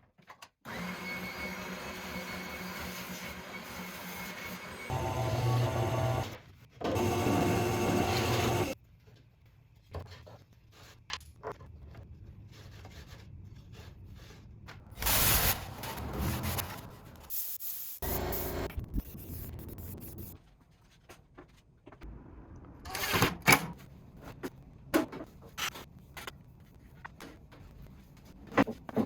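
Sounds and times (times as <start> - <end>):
small electric power tool running: 0.7 - 6.4, 7.0 - 8.8.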